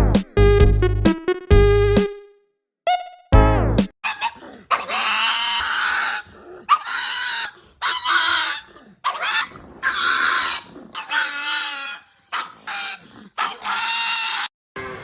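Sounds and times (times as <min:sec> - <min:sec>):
animal high-pitched calls: 0:04.0 - 0:14.5.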